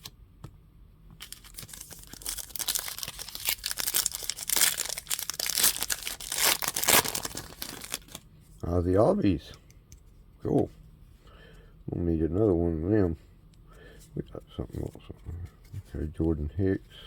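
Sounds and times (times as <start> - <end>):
foil wrapper tearing and crinkling: 1.2 - 8.2.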